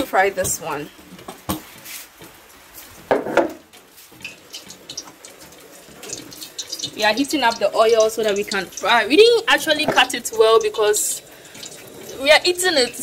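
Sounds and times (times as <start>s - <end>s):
rain dripping and pattering: 2.1s - 13.0s.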